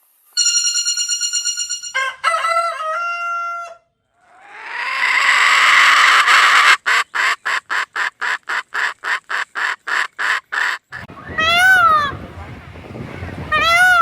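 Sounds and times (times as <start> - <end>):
bird squawking harshly: 4.3 - 12.1.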